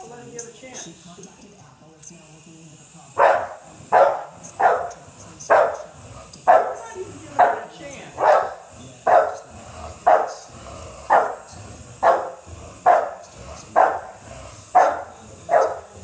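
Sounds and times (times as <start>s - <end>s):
dog barking: 3.2s - 10.5s, 11.1s - 16.0s.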